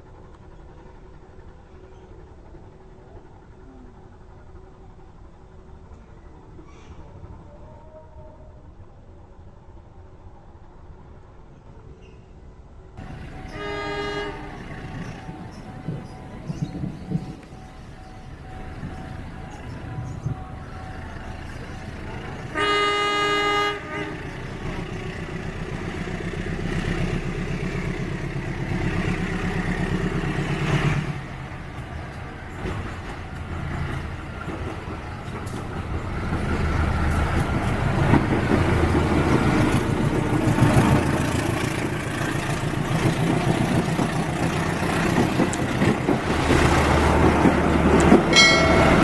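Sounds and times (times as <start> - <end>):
diesel locomotive engine: 0.0 - 49.0.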